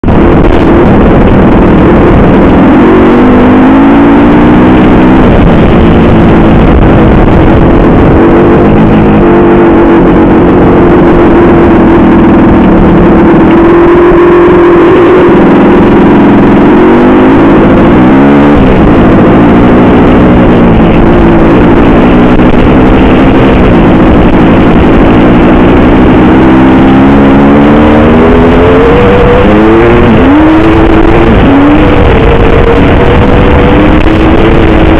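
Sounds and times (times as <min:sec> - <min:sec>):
dirt bike engine revving: 0:00.0 - 0:34.9.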